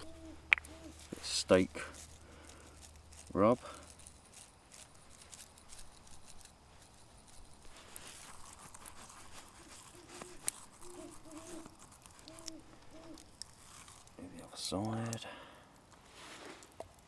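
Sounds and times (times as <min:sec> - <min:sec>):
hands rubbing seasoning into meat: 0:00.0 - 0:14.2
small clicks: 0:09.9 - 0:15.2.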